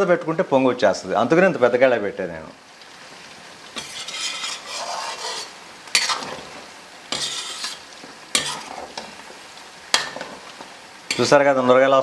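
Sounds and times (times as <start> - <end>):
chicken sizzling in hot oil: 0.0 - 12.0
metal ladle scraping pan: 3.7 - 11.4.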